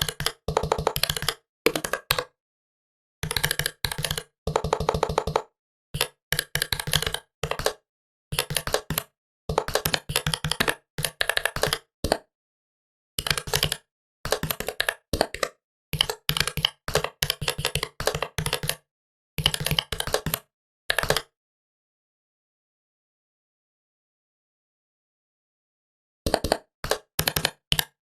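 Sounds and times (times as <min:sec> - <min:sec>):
laptop keyboard typing: 0:00.0 - 0:02.3, 0:03.2 - 0:12.3, 0:13.2 - 0:18.8, 0:19.4 - 0:21.3, 0:26.3 - 0:28.0.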